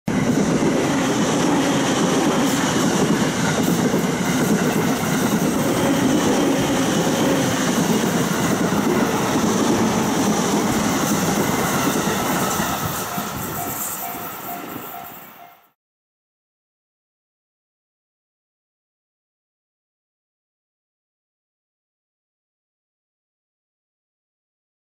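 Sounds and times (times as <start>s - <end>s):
train wheels rushing on rails: 0.1s - 15.8s.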